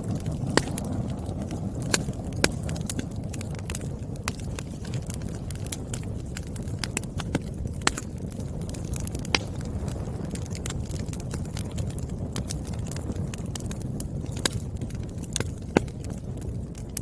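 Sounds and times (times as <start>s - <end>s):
firewood crackling and popping: 0.0s - 17.0s
low rumble of flames: 0.0s - 17.0s.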